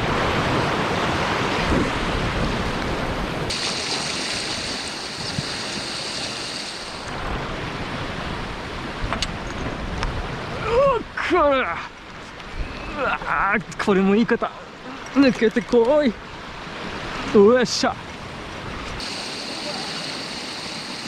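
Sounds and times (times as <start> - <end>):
waves washing on rocky shore: 0.0 - 9.1, 14.9 - 21.0
wind noise on microphone: 0.0 - 11.2, 12.0 - 13.1
steady high hiss: 3.5 - 7.2, 19.0 - 21.0.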